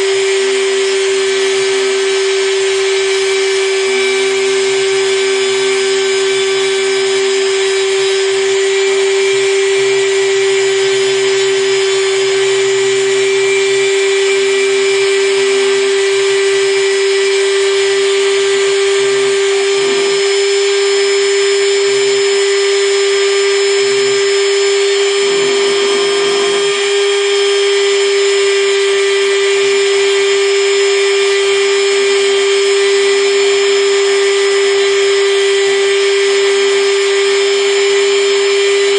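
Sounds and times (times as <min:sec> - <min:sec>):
router spindle high whine: 0:00.0 - 0:38.9
rough low engraving sound: 0:01.5 - 0:28.6.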